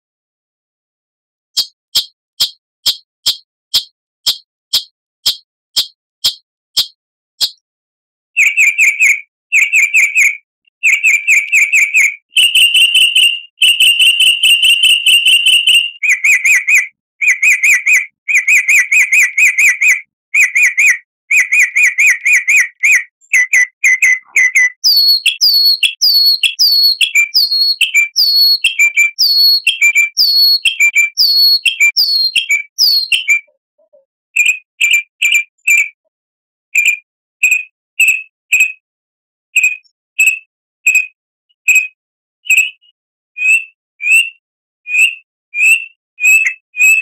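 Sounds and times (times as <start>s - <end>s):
bird sharp chips: 1.6s - 7.6s, 15.6s - 33.5s
songbird chirped trills: 22.3s - 34.0s.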